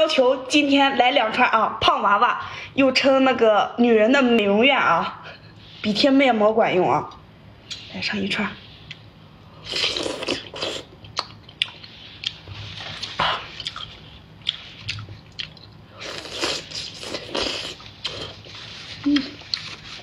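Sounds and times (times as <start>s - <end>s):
person chewing wet food: 9.6s - 19.8s.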